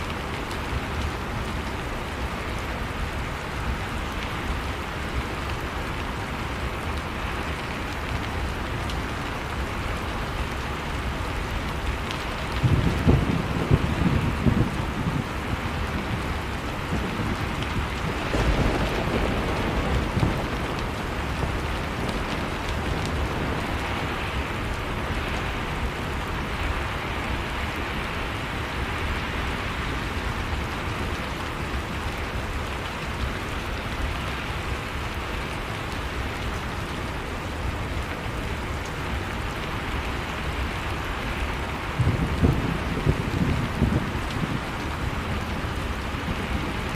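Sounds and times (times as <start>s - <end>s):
heavy rain hissing: 0.0s - 46.9s.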